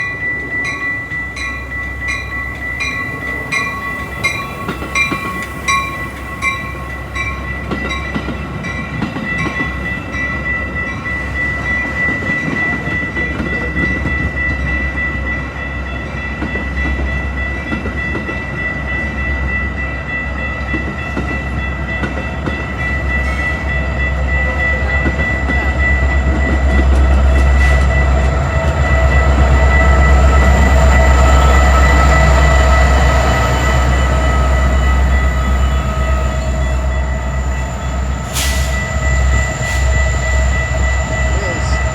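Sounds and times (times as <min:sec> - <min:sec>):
bell ringing: 0:00.0 - 0:41.9
train rumbling: 0:00.0 - 0:41.9.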